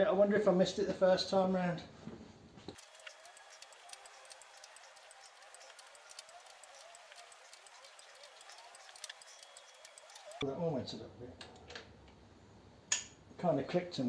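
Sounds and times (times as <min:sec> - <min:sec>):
ratchet wrench clicking: 0:02.8 - 0:10.4.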